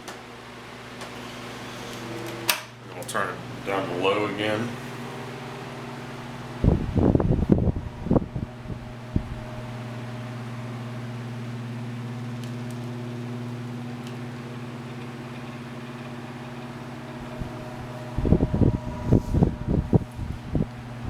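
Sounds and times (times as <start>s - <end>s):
fan motor hum: 0.0s - 21.0s
rush of air from fan: 4.5s - 12.0s, 15.7s - 21.0s.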